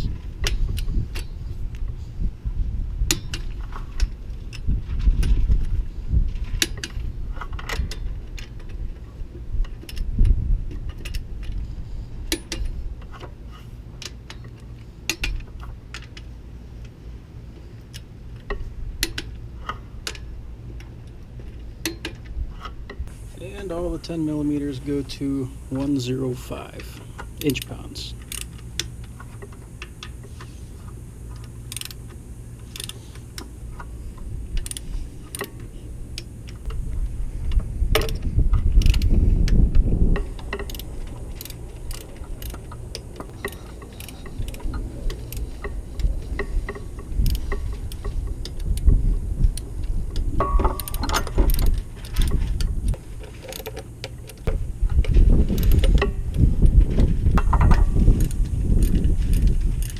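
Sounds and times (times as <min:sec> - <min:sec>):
ratchet clicking: 0:26.6 - 0:36.8, 0:37.5 - 0:39.6, 0:40.2 - 0:54.5, 0:55.4 - 0:56.4, 0:57.4 - 0:59.9.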